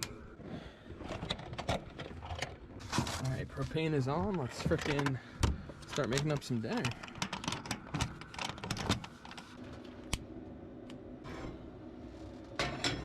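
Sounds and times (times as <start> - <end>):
small clicks and rattles: 1.0 - 10.1.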